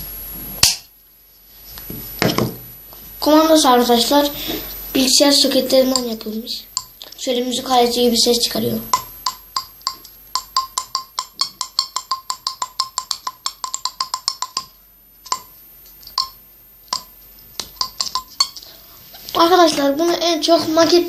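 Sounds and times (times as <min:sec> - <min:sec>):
sharp ringing clicks: 0:05.6 - 0:18.9.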